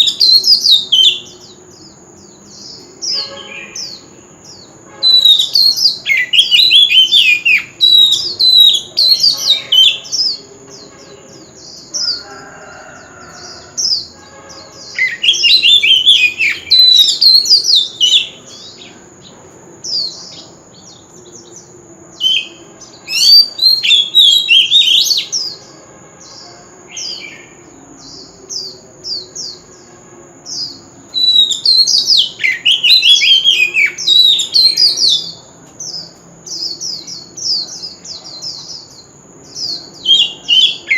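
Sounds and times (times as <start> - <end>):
bird singing whistled phrases: 2.8 - 10.4, 15.0 - 18.9, 22.2 - 25.5, 31.1 - 35.4, 39.7 - 40.9.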